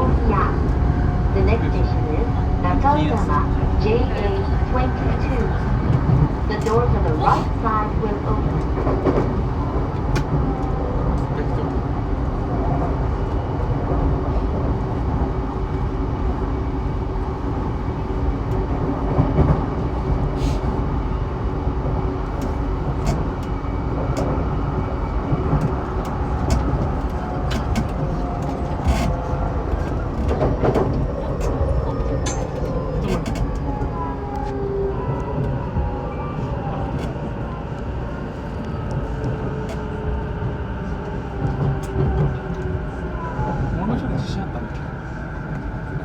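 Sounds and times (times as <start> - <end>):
train wheels rumbling on rail: 0.0 - 46.0
train motor hum: 1.4 - 10.3.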